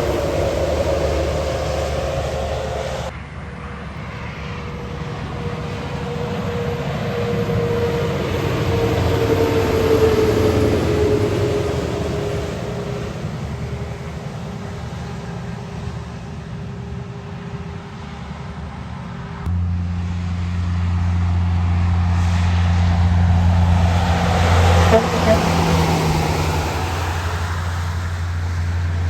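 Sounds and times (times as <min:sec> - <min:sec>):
whine dropping in pitch: 0:00.0 - 0:03.1
heavy truck passing: 0:00.0 - 0:29.0.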